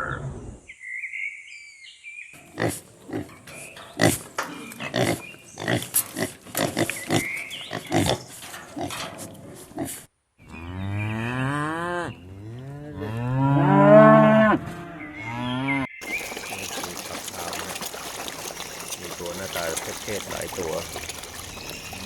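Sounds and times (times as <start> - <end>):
cow mooing: 10.4 - 15.9.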